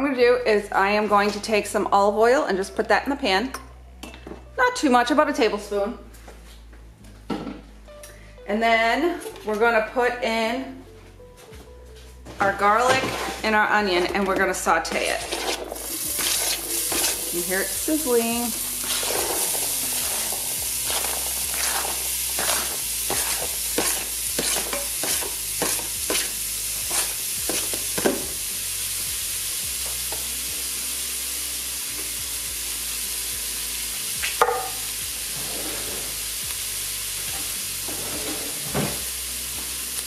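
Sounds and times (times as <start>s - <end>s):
onion sizzling in oil: 14.6s - 40.0s.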